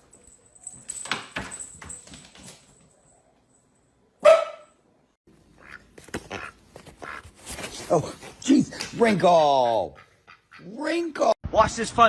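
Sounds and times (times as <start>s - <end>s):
dog barking: 4.2s - 4.8s.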